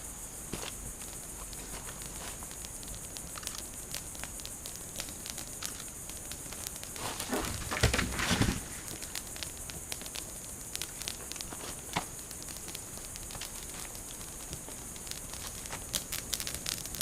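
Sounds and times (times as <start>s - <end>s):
campfire crackling and popping: 0.2s - 17.0s
rustling handling noise: 0.5s - 2.6s.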